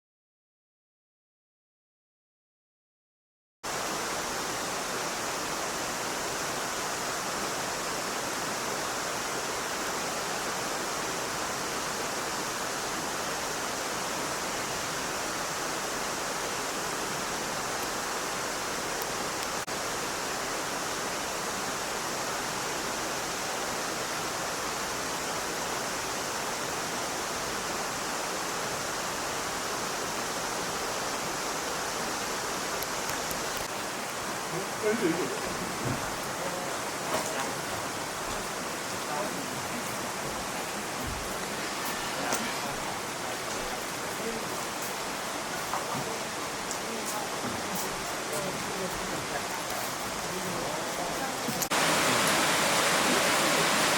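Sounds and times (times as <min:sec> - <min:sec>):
stream water rushing: 0:03.6 - 0:53.9.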